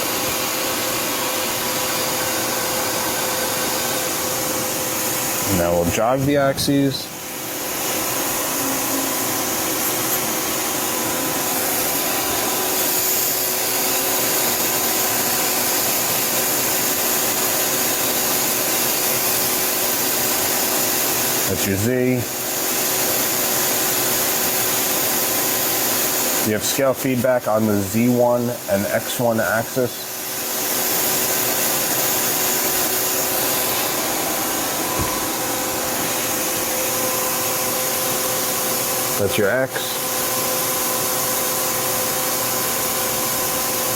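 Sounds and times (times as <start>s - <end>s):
lathe mechanical whir: 0.0s - 21.5s, 30.0s - 43.9s
faint steady whine: 25.8s - 43.9s
brief low thump: 35.0s - 35.2s.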